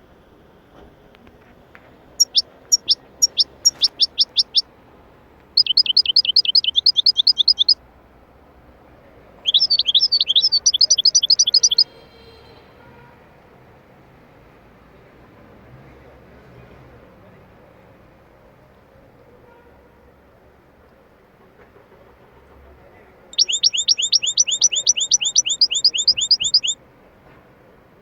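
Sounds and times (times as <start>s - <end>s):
songbird singing trills: 2.2s - 4.7s, 5.5s - 7.8s, 9.4s - 11.9s, 23.4s - 26.8s.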